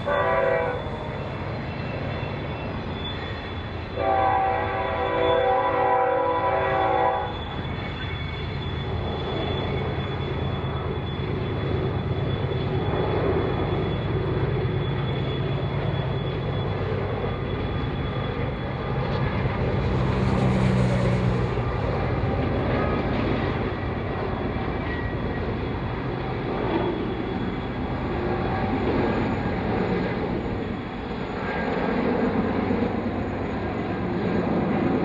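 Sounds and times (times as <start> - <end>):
train horn chord: 0.0 - 1.2, 4.0 - 7.3.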